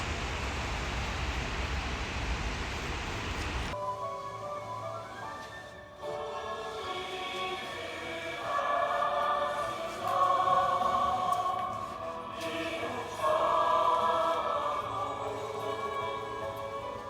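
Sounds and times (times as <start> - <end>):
choir singing held notes: 3.7 - 17.0.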